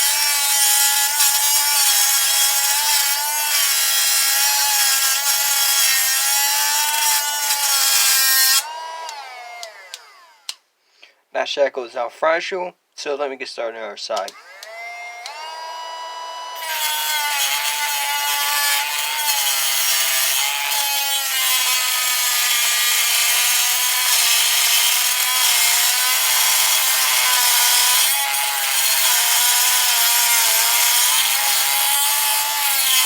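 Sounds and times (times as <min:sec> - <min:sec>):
cut-off wheel grinding metal: 0:00.0 - 0:10.5, 0:14.3 - 0:33.0
grinder motor whine: 0:00.0 - 0:10.6, 0:14.3 - 0:22.0.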